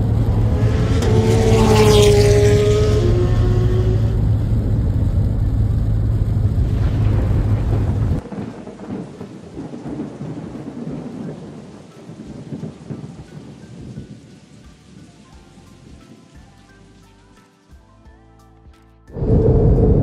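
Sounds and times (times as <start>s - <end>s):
thunder rumbling: 0.0s - 15.1s, 19.2s - 20.0s
heavy rain: 0.0s - 17.3s, 19.2s - 20.0s
soft music: 10.7s - 20.0s.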